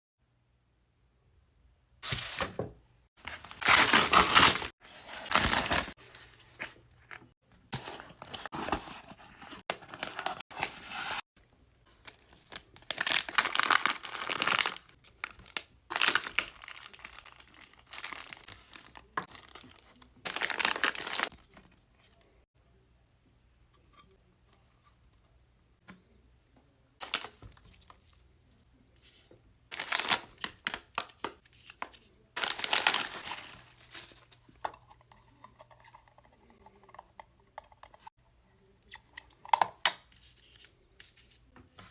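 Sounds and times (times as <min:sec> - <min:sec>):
packaging crinkled and torn: 0:03.3 - 0:06.0, 0:12.1 - 0:21.4, 0:32.4 - 0:33.8.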